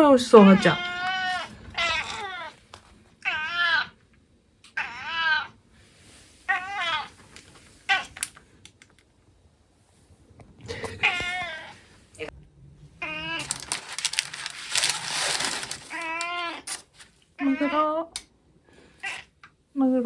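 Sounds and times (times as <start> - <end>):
cat meowing: 0.4 - 2.6, 3.2 - 4.0, 4.7 - 5.6, 6.5 - 7.2, 11.0 - 11.8, 13.0 - 13.7, 15.8 - 16.8, 19.0 - 19.3.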